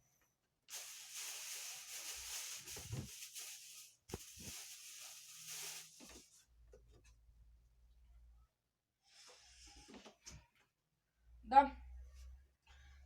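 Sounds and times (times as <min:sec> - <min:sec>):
packaging rustling and tearing: 0:00.7 - 0:06.4.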